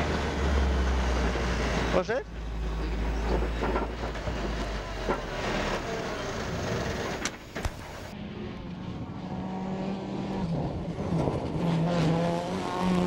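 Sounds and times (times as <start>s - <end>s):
rally car engine running: 0.0s - 13.0s
sharp clicks: 7.1s - 8.2s.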